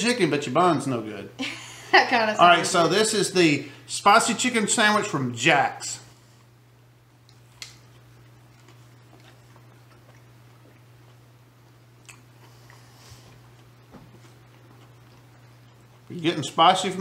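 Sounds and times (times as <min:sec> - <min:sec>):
steady low hum: 0:00.0 - 0:17.0
faint chewing: 0:07.2 - 0:16.8.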